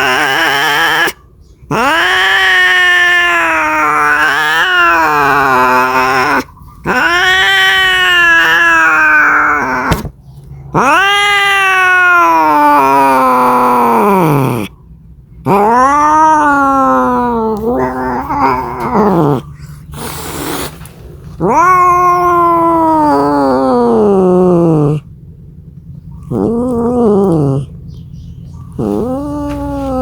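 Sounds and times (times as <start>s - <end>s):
cat yowling: 0.0s - 10.1s, 10.7s - 14.8s, 15.4s - 20.7s, 21.4s - 25.1s, 26.2s - 27.8s, 28.6s - 30.0s.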